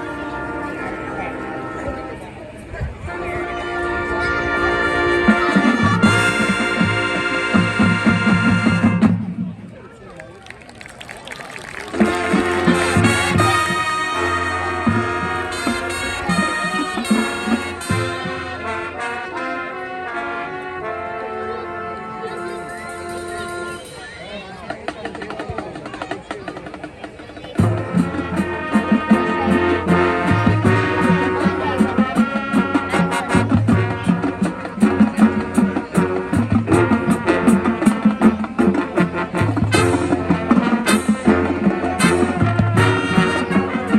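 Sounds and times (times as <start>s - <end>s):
brass chords: 0.0s - 9.3s, 11.8s - 24.0s, 27.6s - 43.9s
marching drum-line rhythm: 5.4s - 9.5s, 10.5s - 18.8s, 24.7s - 43.9s.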